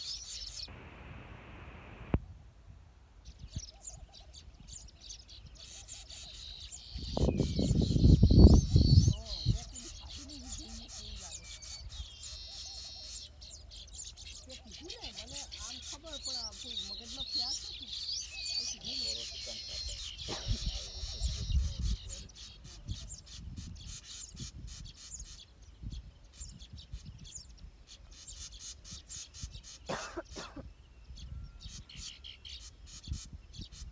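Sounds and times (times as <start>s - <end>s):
weaver birds chirping: 0.0s - 0.7s, 3.2s - 33.9s
low pulsing bird call: 3.5s - 25.4s.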